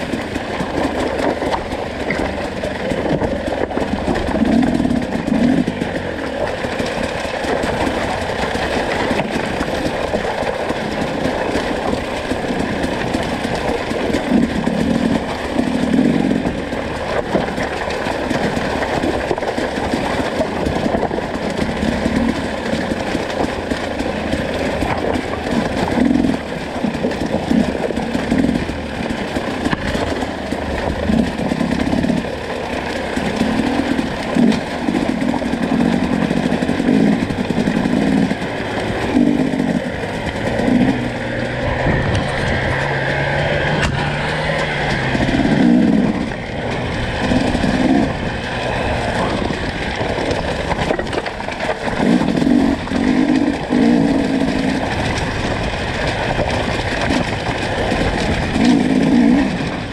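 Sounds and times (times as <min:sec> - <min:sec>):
dirt bike engine revving: 0:02.0 - 0:11.5, 0:12.4 - 0:17.1, 0:33.0 - 0:59.9.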